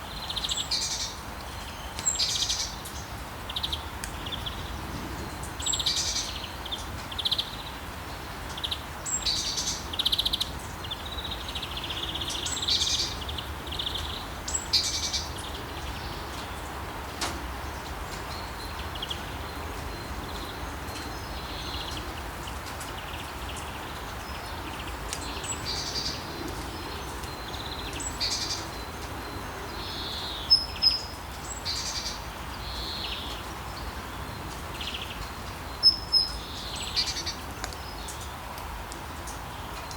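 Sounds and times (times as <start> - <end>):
birds chirping and calling: 18.1 - 38.3.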